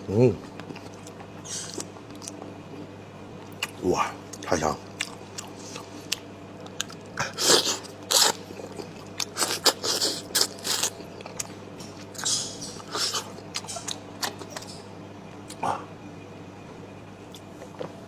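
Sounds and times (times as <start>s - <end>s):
person chewing crunchy food: 3.4s - 14.8s.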